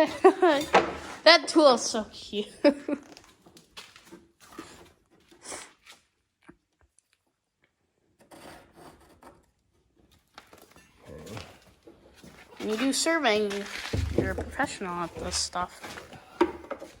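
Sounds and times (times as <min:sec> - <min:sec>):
faint rustling and handling: 0:10.2 - 0:17.0.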